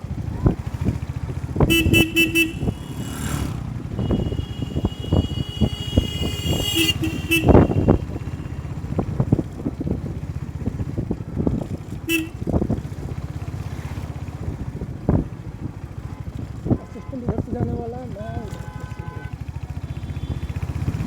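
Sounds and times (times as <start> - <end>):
wind rumble: 0.0 - 13.5
motorcycle engine: 0.0 - 21.0
vehicle horns honking: 1.6 - 9.0, 12.1 - 12.5, 16.1 - 17.5, 18.4 - 21.0.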